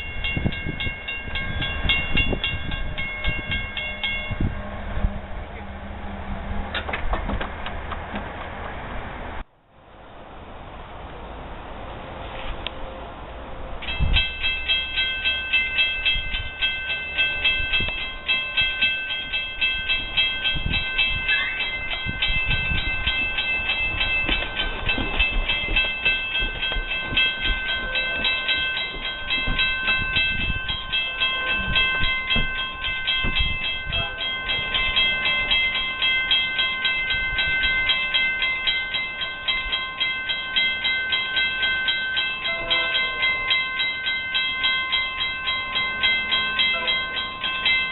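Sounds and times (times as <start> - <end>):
pulsing high metallic ringing: 0.0 - 5.6, 13.8 - 47.9
train passing: 0.0 - 47.9
wheels thumping and rumbling: 1.4 - 9.4, 21.9 - 30.9.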